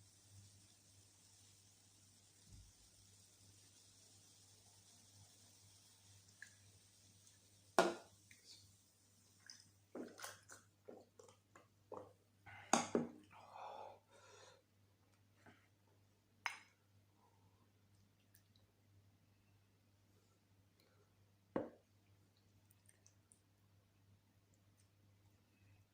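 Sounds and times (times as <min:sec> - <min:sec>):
chewing and wet mouth sounds: 0:09.3 - 0:12.2, 0:22.0 - 0:23.6.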